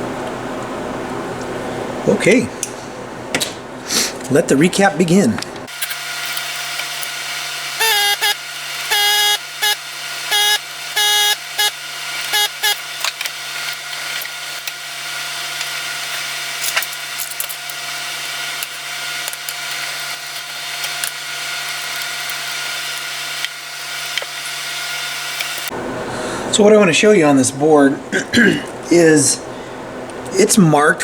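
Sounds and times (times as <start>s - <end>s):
short beeping tones: 7.8s - 12.8s.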